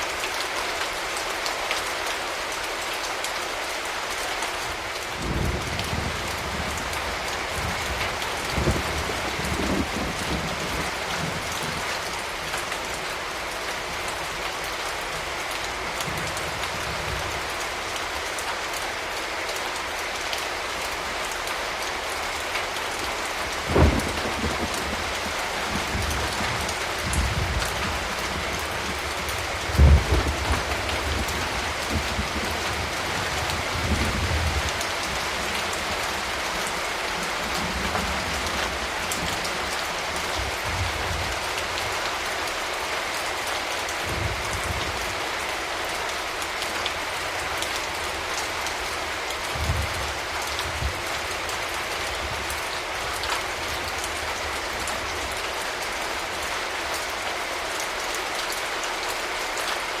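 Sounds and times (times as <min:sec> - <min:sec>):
steady rain: 0:00.0 - 1:00.0
low thunder rumbles: 0:05.2 - 0:12.5, 0:23.5 - 0:39.7, 0:49.5 - 0:52.6.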